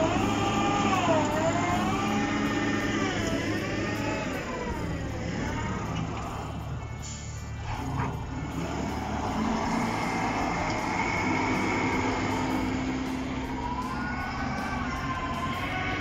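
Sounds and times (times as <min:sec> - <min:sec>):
traffic engine and tyre hum: 0:00.0 - 0:16.0.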